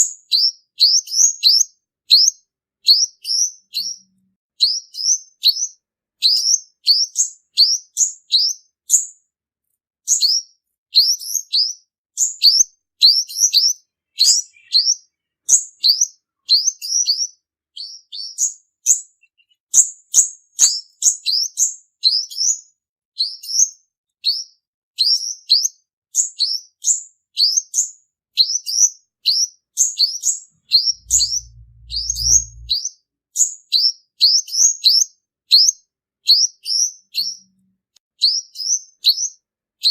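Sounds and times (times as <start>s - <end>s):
bird chirping: 0.0s - 9.1s, 10.1s - 22.6s, 23.2s - 32.9s, 34.4s - 37.6s
low hum: 30.6s - 32.8s.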